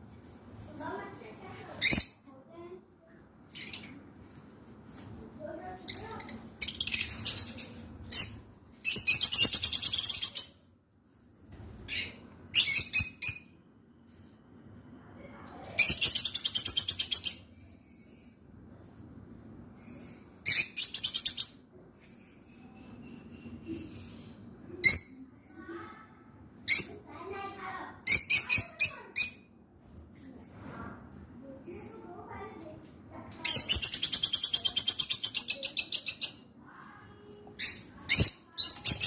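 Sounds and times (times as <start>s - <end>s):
lovebirds chirping shrilly: 28.1s - 29.4s, 33.5s - 36.5s.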